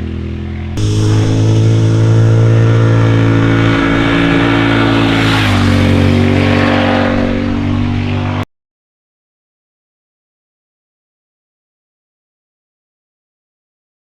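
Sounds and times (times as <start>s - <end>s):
motorcycle engine running: 0.8s - 8.0s.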